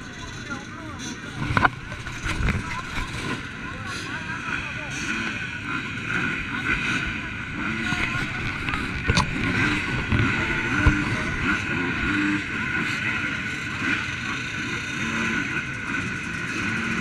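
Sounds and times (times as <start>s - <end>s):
motorcycle engines droning: 0.0s - 17.0s.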